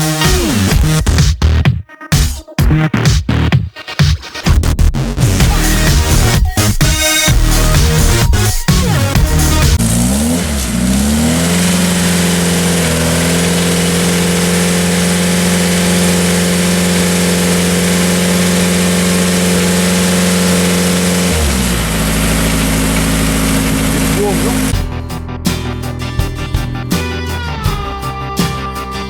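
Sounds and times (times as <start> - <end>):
rally car engine revving: 5.2 - 25.1.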